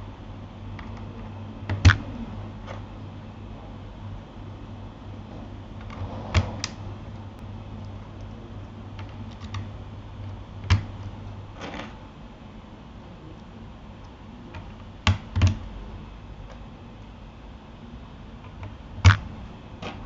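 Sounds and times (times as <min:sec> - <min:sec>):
steady low hum: 0:00.0 - 0:20.0
keyboard key presses: 0:18.6 - 0:20.0.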